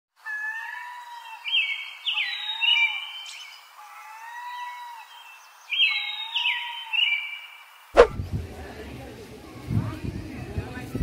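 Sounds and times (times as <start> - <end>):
birds chirping and whistling: 1.4 - 3.6, 5.1 - 7.5.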